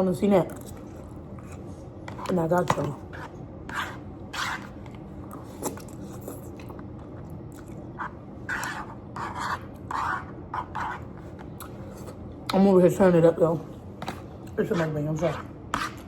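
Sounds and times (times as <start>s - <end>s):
person chewing noodles: 4.9s - 8.7s.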